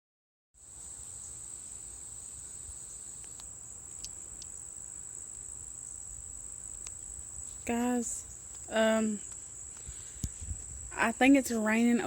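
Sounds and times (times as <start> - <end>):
crickets chirping: 0.6 - 12.0
faint ticks: 3.2 - 4.6, 6.7 - 7.6.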